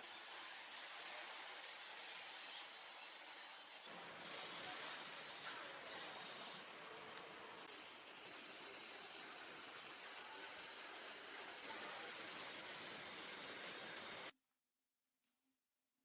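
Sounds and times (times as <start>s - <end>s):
steady hissing noise: 3.7s - 14.3s.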